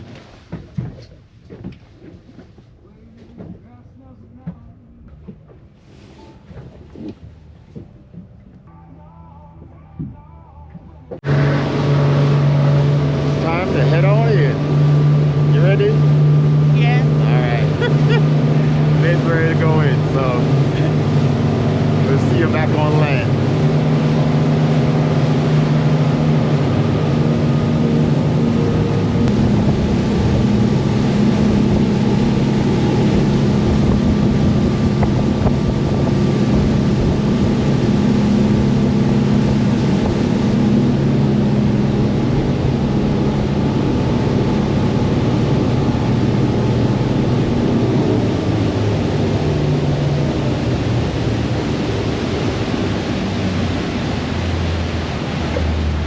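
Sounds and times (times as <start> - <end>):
boat engine running: 0.0 - 56.0
water rushing past: 11.2 - 56.0
wind rushing: 18.0 - 55.1.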